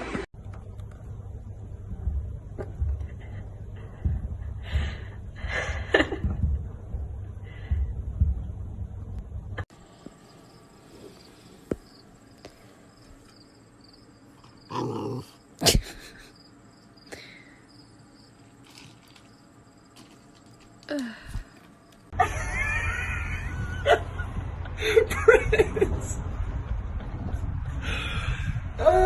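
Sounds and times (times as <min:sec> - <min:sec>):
low rumble: 0:00.4 - 0:09.7.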